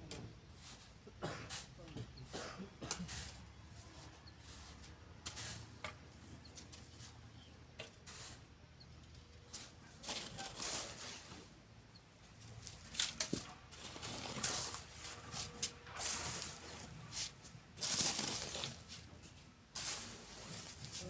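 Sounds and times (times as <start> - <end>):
sand scraping and pouring: 0.6 - 1.7, 4.4 - 5.7, 6.8 - 8.5, 9.5 - 11.4, 12.6 - 21.0.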